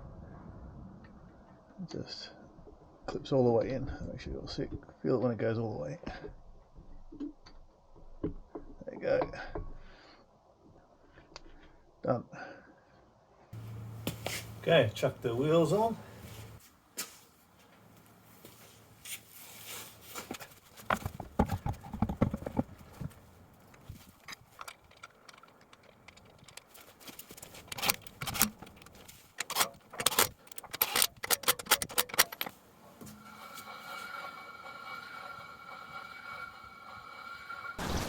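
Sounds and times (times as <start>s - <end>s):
metal clinks and rattles: 21.1s - 32.6s.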